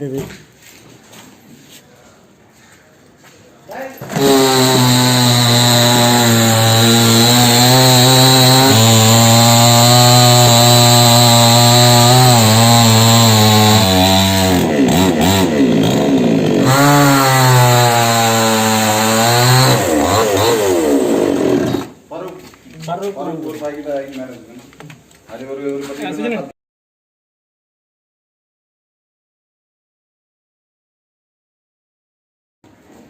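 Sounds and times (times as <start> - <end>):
chainsaw cutting wood: 4.0 - 22.0.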